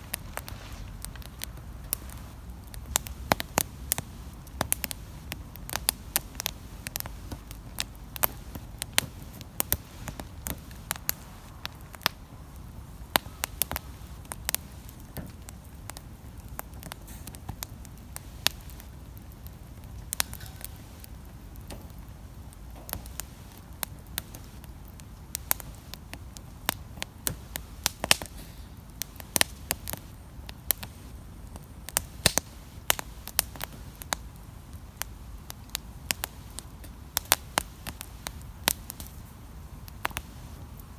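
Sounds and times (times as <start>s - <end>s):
steady low rumble: 0.0s - 27.9s
campfire crackling and popping: 0.0s - 40.9s.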